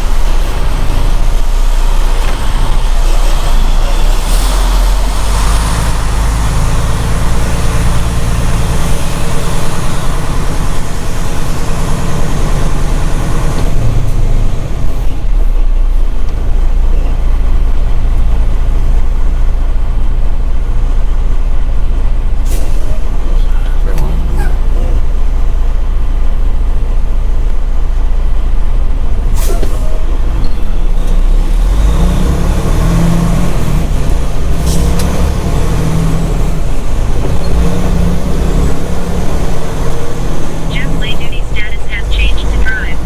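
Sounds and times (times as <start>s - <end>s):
diesel truck engine droning: 0.0s - 43.0s.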